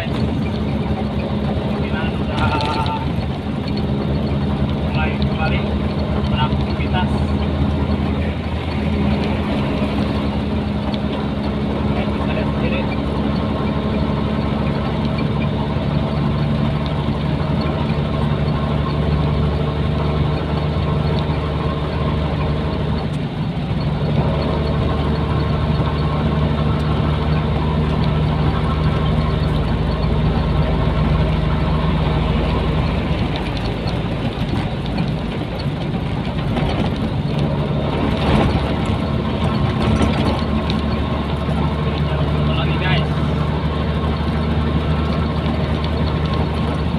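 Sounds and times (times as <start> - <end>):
truck diesel engine droning: 0.0 - 46.9.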